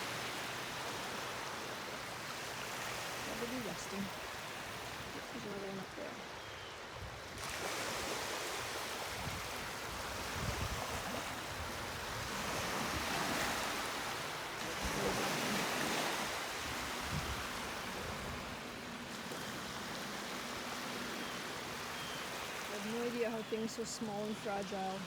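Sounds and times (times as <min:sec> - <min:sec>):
lake waves washing onto beach: 0:00.0 - 0:25.0
wind buffeting microphone: 0:08.6 - 0:13.8, 0:14.7 - 0:18.8.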